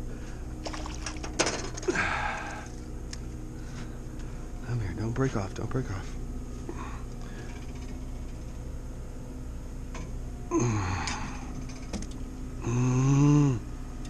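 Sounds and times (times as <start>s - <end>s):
steady low hum: 0.0s - 14.0s
man grunting: 10.5s - 11.4s, 12.6s - 13.7s.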